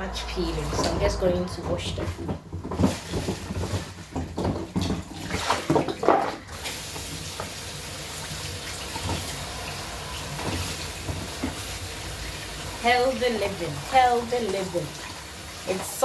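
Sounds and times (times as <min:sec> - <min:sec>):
knocks and clatter: 0:00.2 - 0:06.4
tap running into a sink: 0:02.3 - 0:15.8.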